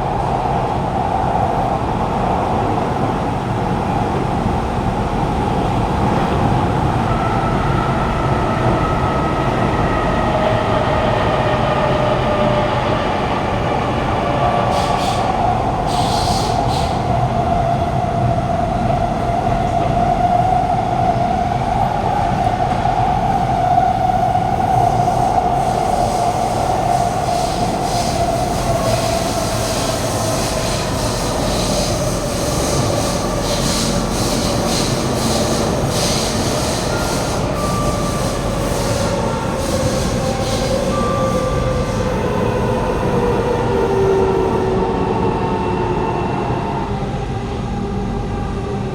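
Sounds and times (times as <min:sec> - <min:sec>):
metro train rumble in tunnel: 0:00.0 - 0:48.9
train whining tones: 0:21.9 - 0:48.9.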